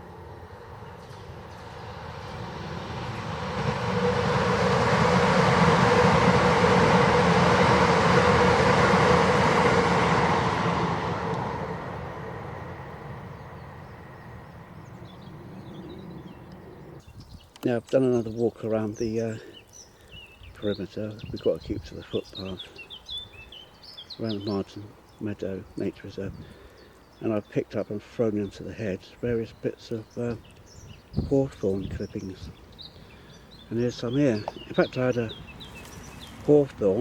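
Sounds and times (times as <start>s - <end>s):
vehicle passing by: 0.2s - 17.0s.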